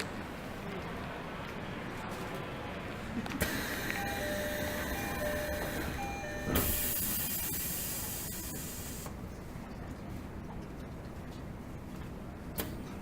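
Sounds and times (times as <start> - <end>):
two-note door chime: 4.0 - 6.9
train doors shutting thud: 5.5 - 7.2
air hiss: 6.6 - 9.1.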